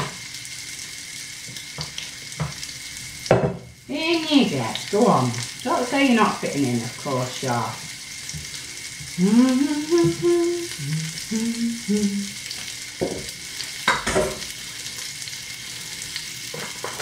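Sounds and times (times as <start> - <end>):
patties sizzling in a frying pan: 0.0 - 17.0
woman humming: 9.1 - 12.5.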